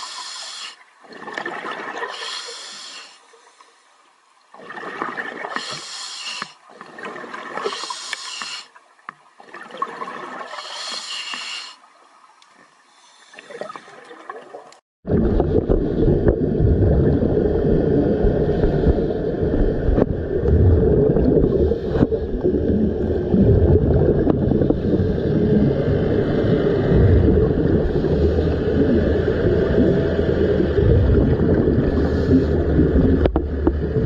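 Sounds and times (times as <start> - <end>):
rushing water: 0.0 - 18.4.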